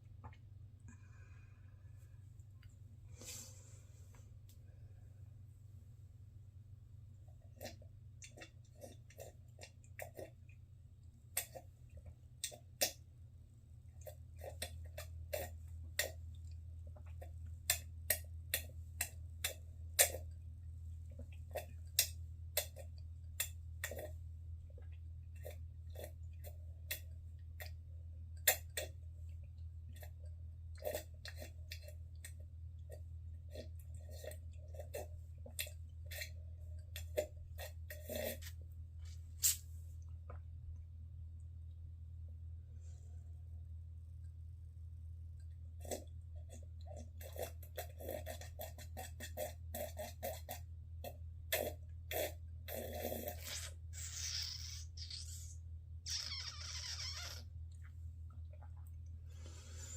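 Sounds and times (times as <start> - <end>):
person slurping and gulping: 7.4 - 10.5, 29.9 - 38.7, 45.8 - 57.4
low hum: 38.6 - 46.9.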